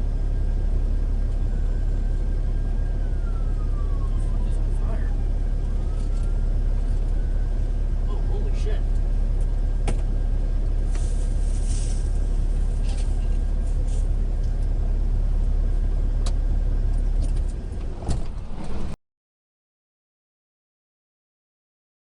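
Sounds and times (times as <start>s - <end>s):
vehicle rumble: 0.0s - 19.0s
thump: 9.8s - 10.1s, 18.0s - 19.0s.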